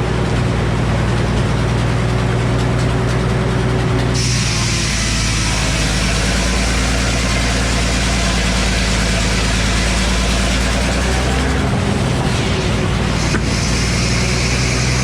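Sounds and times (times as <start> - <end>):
engine running: 0.0 - 15.0
circular saw cutting log: 4.1 - 15.0.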